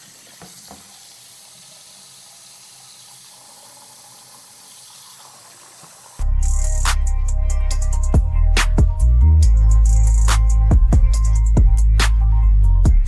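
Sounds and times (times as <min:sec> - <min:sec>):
tap running into sink: 0:00.1 - 0:01.2
loud music with heavy bass: 0:06.2 - 0:13.0.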